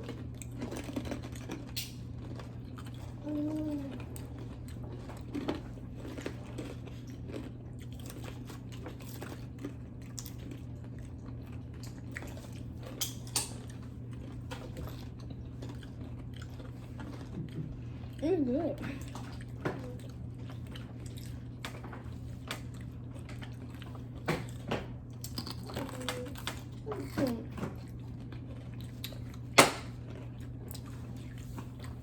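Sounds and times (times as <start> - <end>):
people crunching food: 0.0 - 32.0
person humming: 3.2 - 4.0.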